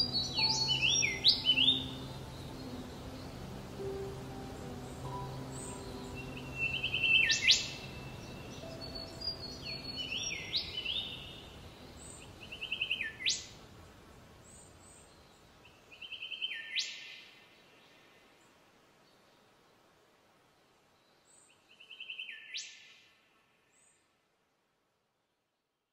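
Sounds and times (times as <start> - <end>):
soft background music: 0.0 - 12.5.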